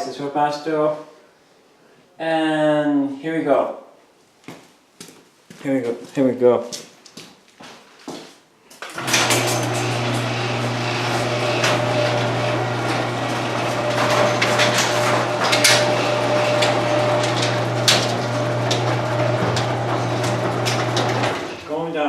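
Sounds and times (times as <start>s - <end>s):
garage door opener motor humming: 8.9s - 21.9s
garage door rattling and clicking: 8.9s - 21.9s.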